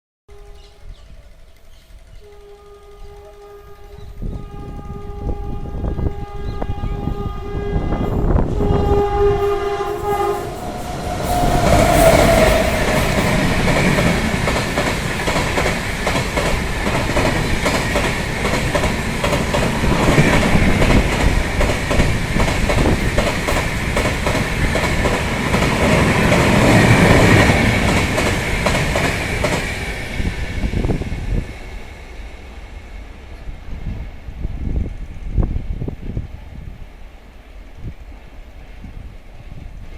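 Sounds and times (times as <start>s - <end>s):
train horn blast: 0.3s - 1.2s, 2.1s - 14.5s
train rumbling past: 0.3s - 39.9s
wheels clacking over rail joints: 9.9s - 30.0s.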